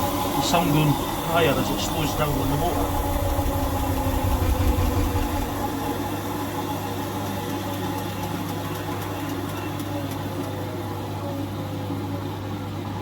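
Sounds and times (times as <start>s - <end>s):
faint motor whirr: 0.0s - 6.3s
steady hum: 0.0s - 6.6s.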